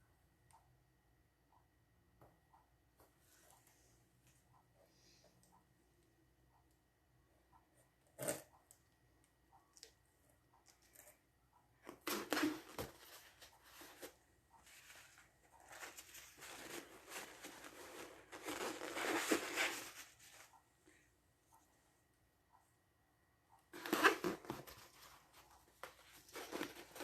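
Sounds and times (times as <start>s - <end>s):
rustling and scraping: 12.1s - 20.6s.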